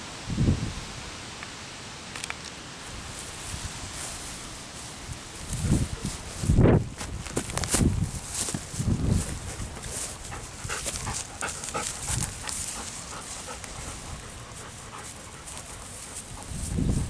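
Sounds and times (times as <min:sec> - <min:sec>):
faint wind rumble on microphone: 0:00.0 - 0:01.4, 0:02.8 - 0:17.0
dog panting: 0:09.3 - 0:17.0.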